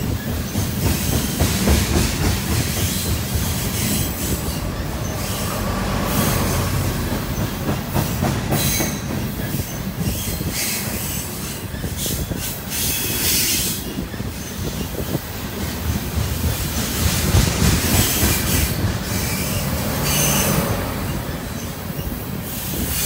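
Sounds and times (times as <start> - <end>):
freight train rumbling and rattling: 0.0 - 23.0
high wheel squeals: 2.8 - 7.7, 18.0 - 23.0.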